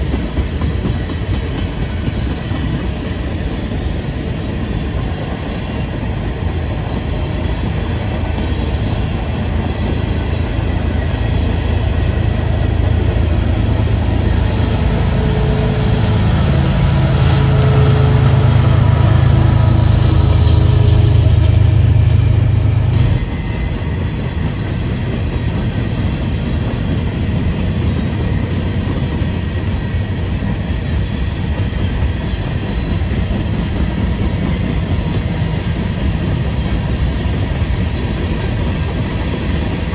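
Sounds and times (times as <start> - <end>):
train wheels on rails: 0.0 - 39.9
diesel engine drone: 10.5 - 23.2.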